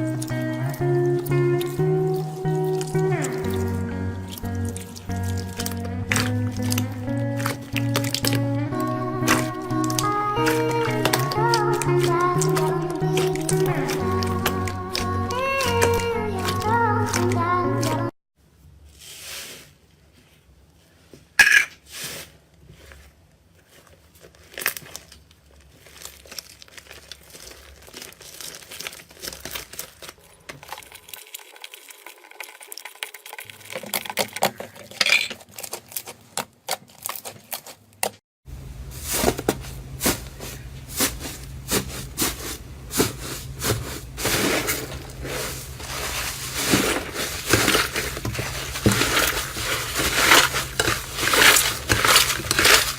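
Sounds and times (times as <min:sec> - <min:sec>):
slime popping and crackling: 0:00.0 - 0:18.0, 0:24.3 - 0:30.2, 0:46.6 - 0:52.9.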